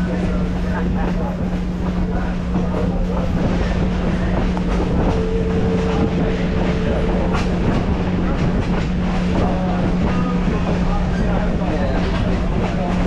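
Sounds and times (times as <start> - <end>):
train rumbling on track: 0.0 - 13.0
wheels clacking over rails: 0.0 - 13.0
high steady tone: 3.7 - 10.1.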